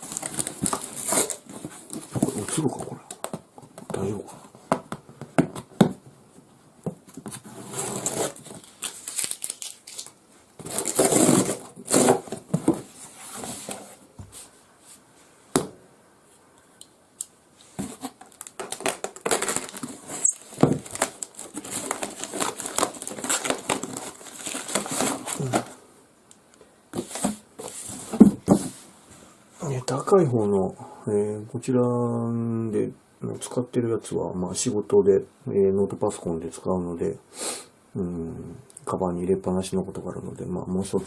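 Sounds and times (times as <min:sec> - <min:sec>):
packaging crinkling and rustling: 0:00.0 - 0:04.2, 0:07.2 - 0:13.9, 0:17.7 - 0:25.8.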